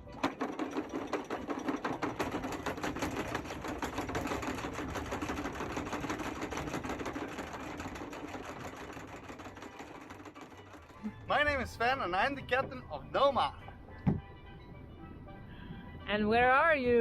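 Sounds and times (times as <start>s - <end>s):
anchor chain rattling: 0.0s - 12.8s
windlass motor hum: 0.0s - 16.7s.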